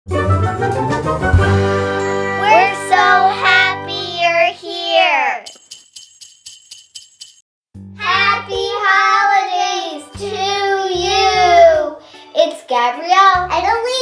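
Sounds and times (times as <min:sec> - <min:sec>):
high jingling ticks: 0:05.5 - 0:07.4.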